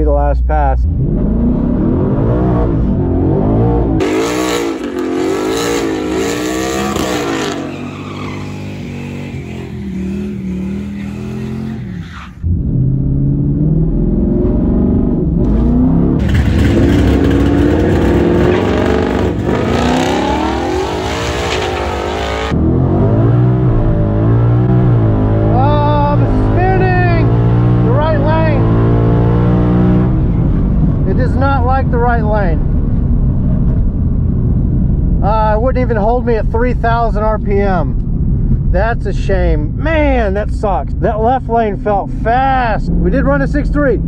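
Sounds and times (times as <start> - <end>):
car engine revving: 0.6 - 35.3
car accelerating hard: 0.9 - 31.2.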